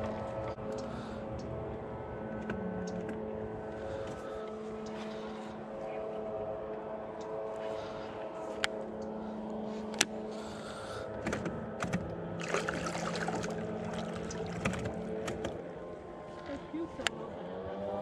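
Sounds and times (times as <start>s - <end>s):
boat motor humming: 0.0s - 18.0s.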